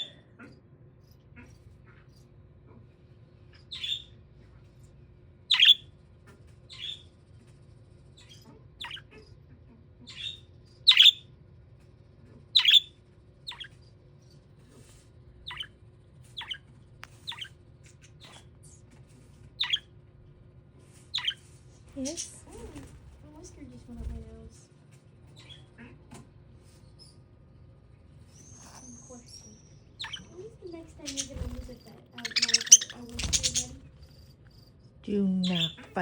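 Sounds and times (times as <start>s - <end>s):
budgerigar chirping: 3.7s - 4.1s, 5.5s - 5.8s, 6.7s - 7.0s, 8.8s - 9.2s, 10.1s - 11.2s, 12.6s - 13.8s, 15.5s - 15.7s, 19.6s - 19.9s, 21.2s - 21.4s, 29.3s - 30.4s, 31.0s - 34.2s, 35.4s - 36.0s.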